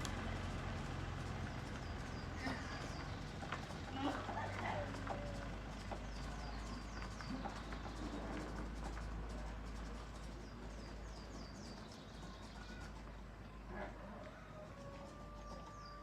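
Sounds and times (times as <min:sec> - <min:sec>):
bird chirping: 0:09.7 - 0:13.0, 0:14.8 - 0:16.0.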